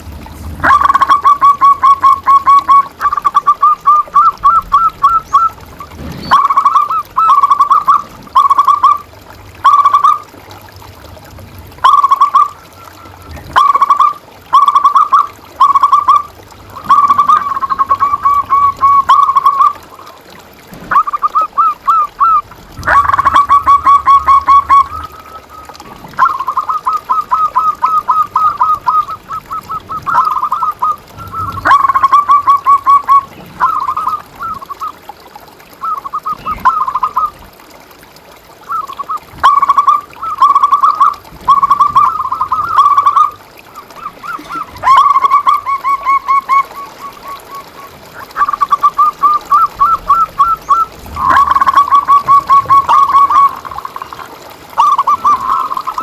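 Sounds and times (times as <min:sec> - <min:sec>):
doves cooing: 0:00.0 - 0:56.0.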